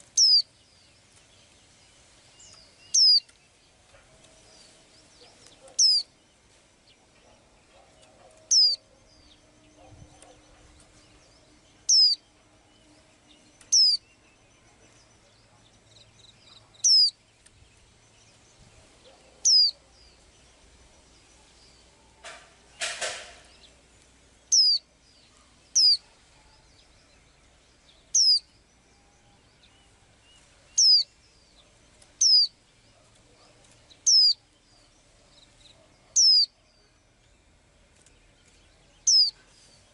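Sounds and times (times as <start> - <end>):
cage bird sharp downward call: 0.2 - 0.5, 3.0 - 3.2, 5.7 - 6.1, 8.4 - 8.9, 11.9 - 12.2, 13.7 - 14.0, 16.8 - 17.2, 19.4 - 19.8, 24.5 - 24.8, 28.2 - 28.4, 30.8 - 31.1, 32.2 - 32.5, 34.1 - 34.4, 36.2 - 36.5.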